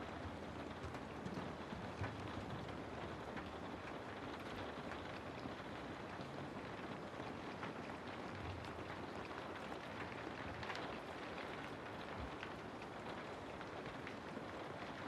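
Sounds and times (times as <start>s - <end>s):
steady rain pattering: 0.0s - 15.0s.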